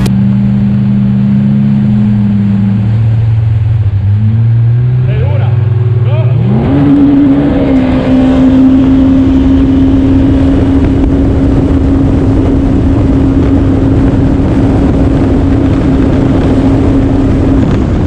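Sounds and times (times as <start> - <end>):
jet ski engine running: 0.0 - 18.0.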